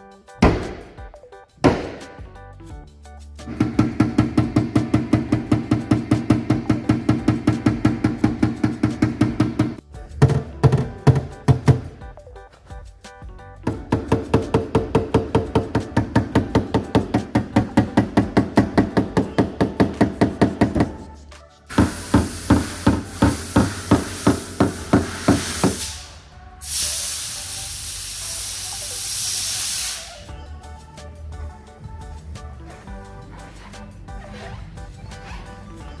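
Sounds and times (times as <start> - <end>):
steady hiss: 21.7 - 30.3.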